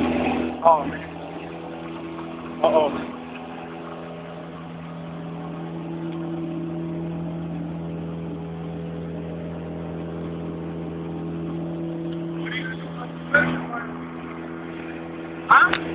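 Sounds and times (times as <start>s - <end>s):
car engine idling: 0.0s - 15.9s.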